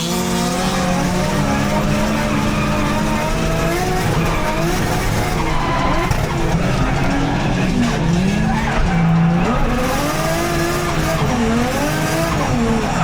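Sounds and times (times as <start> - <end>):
car engine revving hard: 0.0 - 13.0
tyres skidding and screeching: 0.0 - 13.0.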